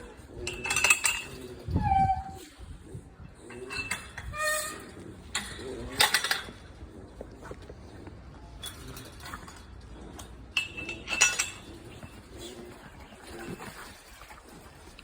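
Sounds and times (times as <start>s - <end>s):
metal food bowls clinking: 0.0s - 1.7s, 8.6s - 15.0s.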